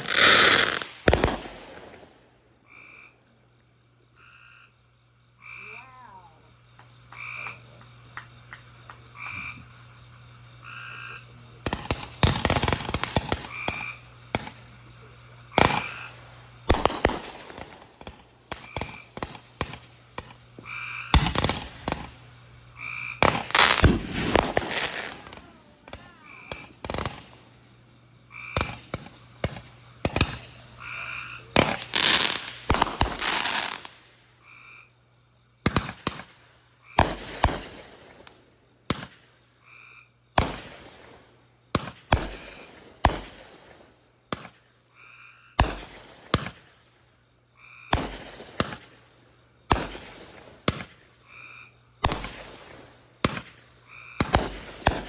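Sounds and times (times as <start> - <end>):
fireworks bangs: 0.0 - 2.3, 11.5 - 34.1, 35.6 - 39.3, 40.4 - 44.6, 45.6 - 46.8, 47.9 - 51.2, 52.0 - 55.0
crackling firework volleys: 0.0 - 55.0.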